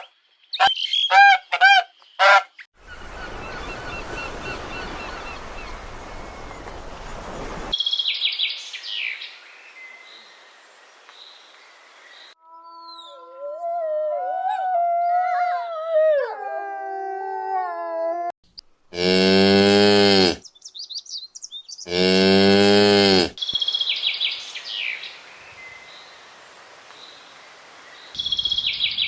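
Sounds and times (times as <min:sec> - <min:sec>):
goose honking: 0:00.6 - 0:02.5
dog howling: 0:13.1 - 0:18.3
cow mooing: 0:18.9 - 0:20.4, 0:21.9 - 0:23.4
high bird chirps: 0:28.2 - 0:29.0.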